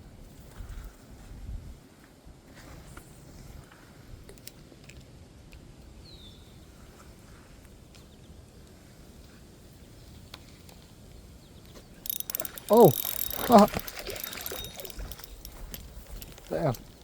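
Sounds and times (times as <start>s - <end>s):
wind rumble on microphone: 0.2s - 1.8s
faint clicks: 12.1s - 17.0s.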